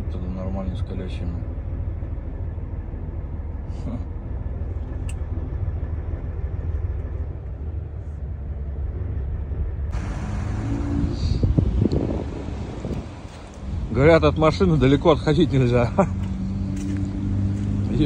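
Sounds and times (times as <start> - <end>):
diesel truck engine rumbling: 0.0 - 18.0.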